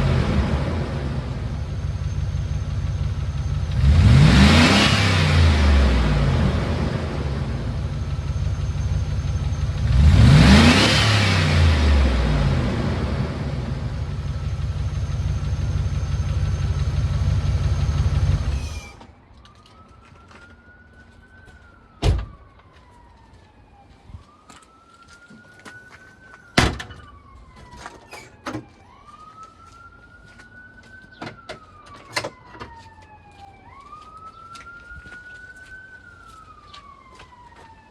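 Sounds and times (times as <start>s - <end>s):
car engine running loudly: 0.0s - 18.9s
siren wailing: 0.0s - 37.9s.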